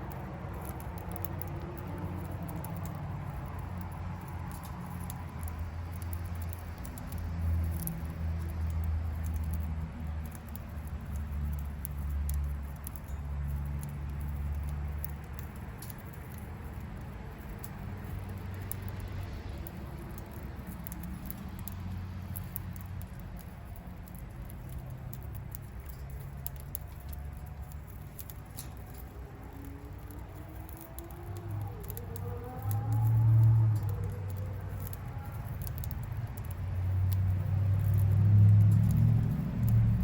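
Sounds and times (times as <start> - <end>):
bird beak cracking seeds: 0.0 - 40.0.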